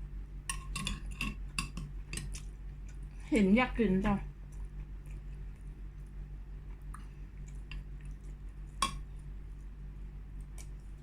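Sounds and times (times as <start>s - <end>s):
steady low hum: 0.0s - 11.0s
soft eating mouth sounds: 0.5s - 3.3s, 4.2s - 11.0s.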